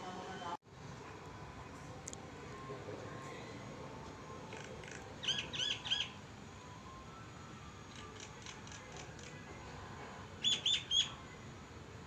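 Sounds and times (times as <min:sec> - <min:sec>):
bird calling: 0:04.5 - 0:06.2, 0:10.4 - 0:11.2.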